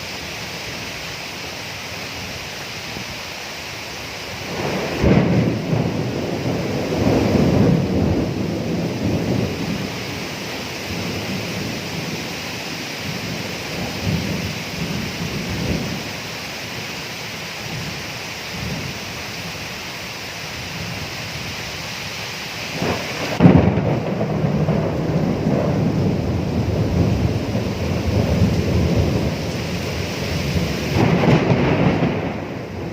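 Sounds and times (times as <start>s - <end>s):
steady rain: 0.0s - 32.9s
loud thunderclap: 4.4s - 12.2s, 22.8s - 32.9s
rolling thunder: 4.4s - 16.3s, 22.7s - 32.9s.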